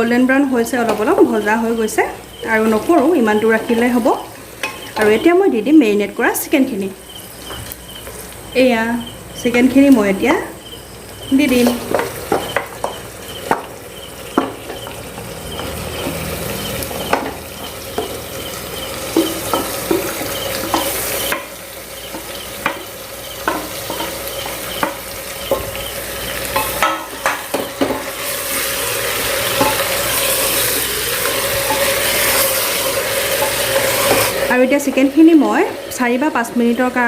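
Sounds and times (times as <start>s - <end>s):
chicken sizzling in hot oil: 0.0s - 37.0s
spatula clicking and scraping pot: 2.3s - 5.3s, 11.3s - 34.5s.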